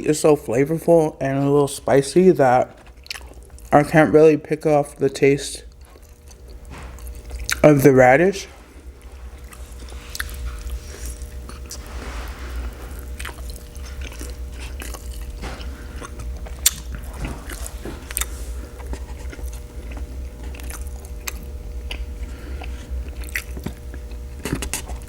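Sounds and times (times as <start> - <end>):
steady low hum: 0.0 - 25.0
wet chewing and mouth smacks: 2.8 - 3.7, 5.7 - 7.6, 9.3 - 11.8, 13.0 - 25.0.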